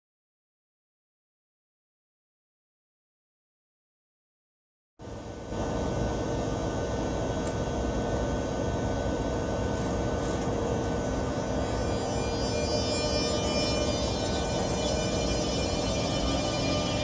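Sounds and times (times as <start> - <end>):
train humming: 8.4 - 17.0.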